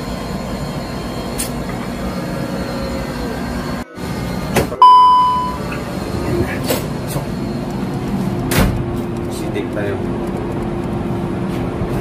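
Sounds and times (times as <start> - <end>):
high-pitched whine: 0.0 - 8.1.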